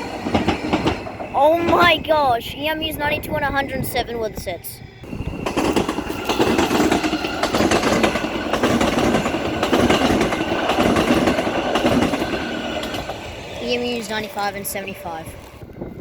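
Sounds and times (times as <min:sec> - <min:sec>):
train wheels clattering over rail joints: 0:00.0 - 0:02.0, 0:05.2 - 0:15.6
train rushing past: 0:00.0 - 0:16.0.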